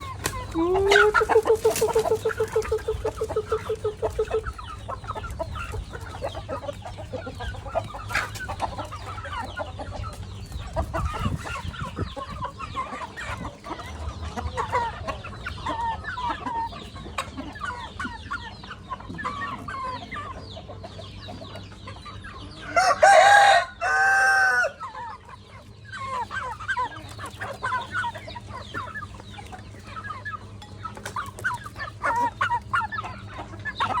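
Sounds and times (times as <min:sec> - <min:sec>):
chickens clucking: 0:00.0 - 0:34.0
rooster crowing: 0:22.7 - 0:24.8.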